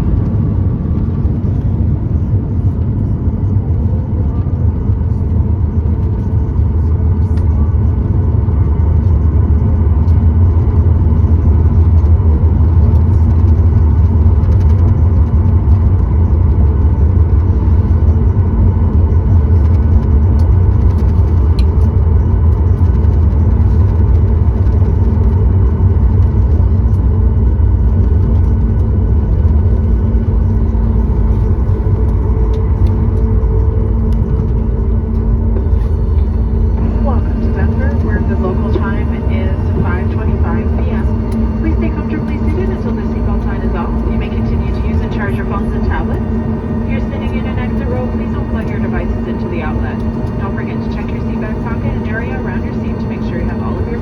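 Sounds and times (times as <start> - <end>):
aircraft cabin engine rumble: 0.0 - 54.0
faint steady tones: 29.1 - 54.0.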